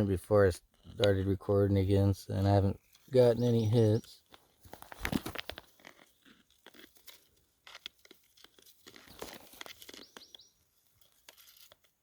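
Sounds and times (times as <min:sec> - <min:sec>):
gravel and rock crunching: 0:02.8 - 0:11.9.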